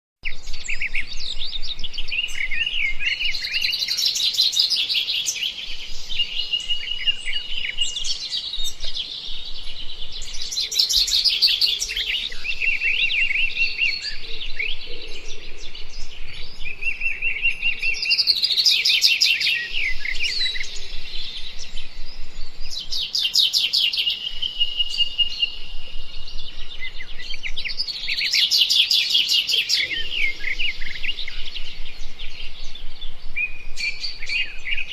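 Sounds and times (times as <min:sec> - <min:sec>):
birds chirping and chattering: 0:00.2 - 0:34.9.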